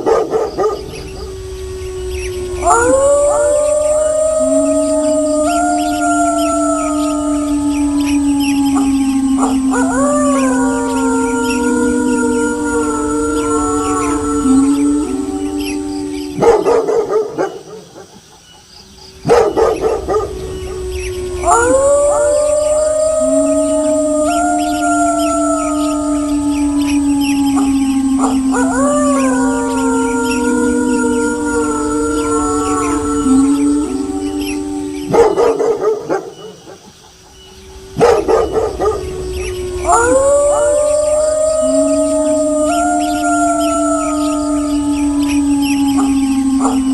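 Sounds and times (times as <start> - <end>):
dog barking: 0.0 - 0.8, 16.4 - 18.1, 19.2 - 20.2
wolves howling: 0.0 - 18.2, 18.8 - 46.9.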